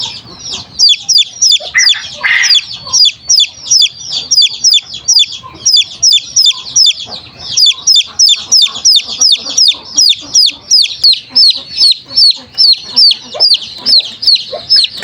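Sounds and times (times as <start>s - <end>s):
baby chick peeping: 0.0s - 15.0s.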